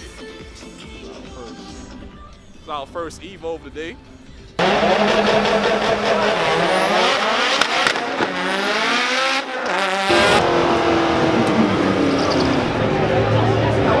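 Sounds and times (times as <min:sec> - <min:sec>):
car engine accelerating hard: 0:04.6 - 0:14.0.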